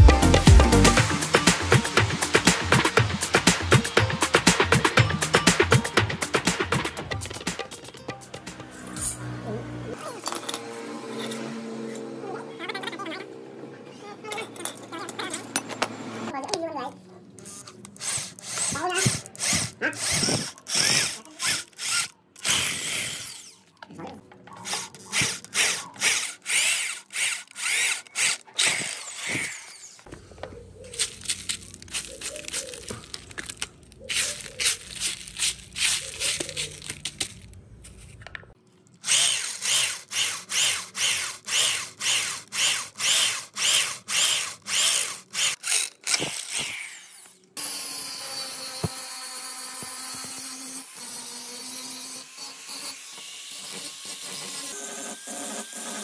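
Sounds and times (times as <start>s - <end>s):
power tool running: 8.5s - 12.6s, 17.5s - 23.7s, 24.7s - 30.1s, 39.0s - 56.0s.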